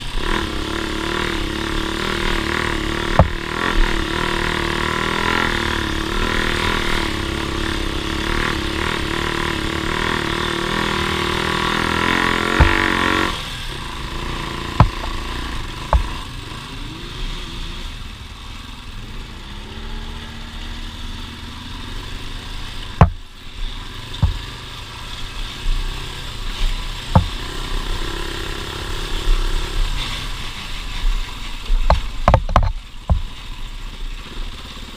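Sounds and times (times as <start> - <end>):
vehicle engine running: 0.0 - 34.9
sharp knocks: 3.1 - 3.9, 11.8 - 13.3, 14.7 - 15.3, 15.9 - 16.2, 23.0 - 23.2, 24.2 - 24.6, 27.1 - 27.4, 31.9 - 33.3.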